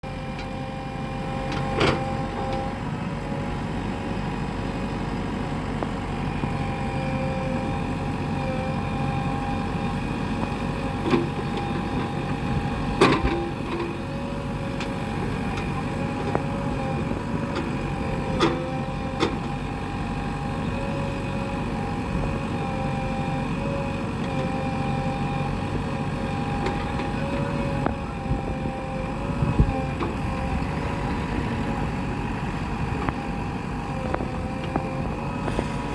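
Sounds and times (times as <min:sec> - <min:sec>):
digger diesel engine under load: 0:00.0 - 0:35.9
held whine: 0:00.0 - 0:35.9.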